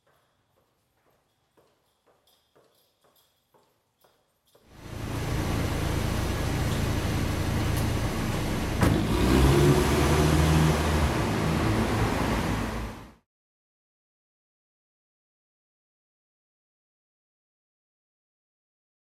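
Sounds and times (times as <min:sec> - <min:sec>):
car engine running: 0:04.8 - 0:13.2.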